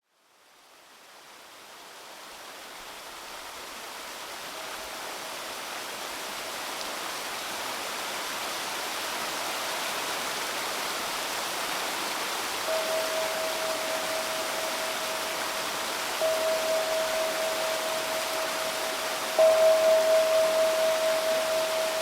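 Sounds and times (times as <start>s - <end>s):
river babbling: 3.9s - 22.0s
faint ringing tone: 12.6s - 22.0s.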